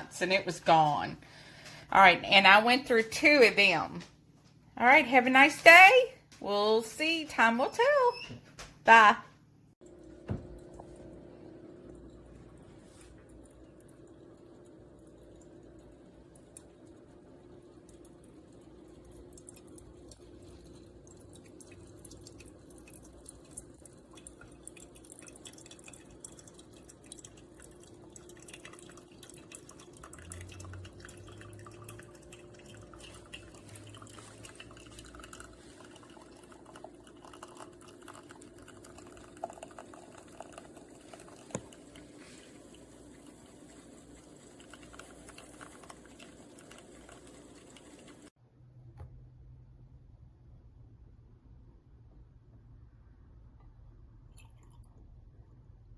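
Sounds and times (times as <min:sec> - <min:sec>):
liquid dripping and trickling: 0:09.8 - 0:48.3, 0:54.3 - 0:55.1
espresso machine hum: 0:29.7 - 0:48.3.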